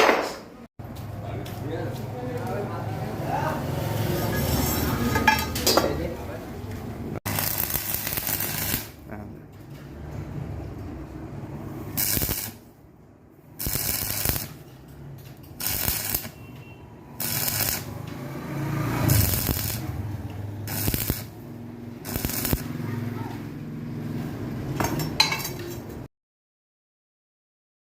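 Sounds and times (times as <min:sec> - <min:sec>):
arc welding hiss: 0:07.3 - 0:09.0, 0:11.9 - 0:12.6, 0:13.6 - 0:14.6, 0:15.6 - 0:16.4, 0:17.2 - 0:17.9, 0:19.0 - 0:20.0, 0:20.6 - 0:21.4, 0:22.0 - 0:22.7.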